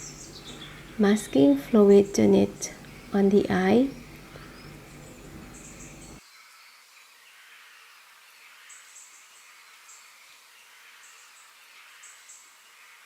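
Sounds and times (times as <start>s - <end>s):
soft hiss: 0.0s - 6.2s.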